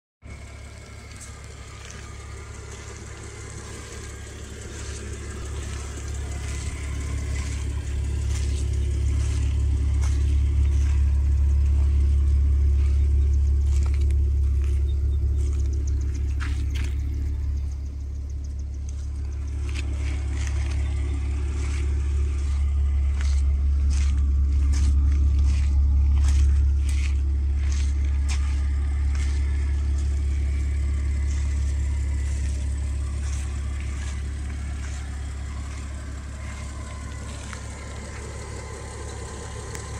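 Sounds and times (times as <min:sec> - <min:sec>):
car engine idling: 0:00.2 - 0:39.9
footsteps on gravel: 0:00.3 - 0:39.9.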